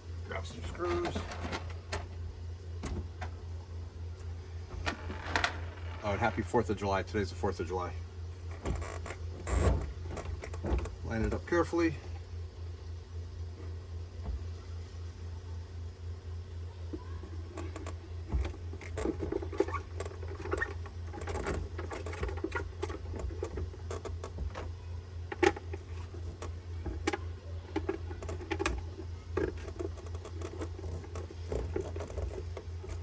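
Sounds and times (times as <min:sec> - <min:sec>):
steady low hum: 0:00.0 - 0:33.0
plastic parts clicking and rattling: 0:00.7 - 0:02.2, 0:17.4 - 0:33.0.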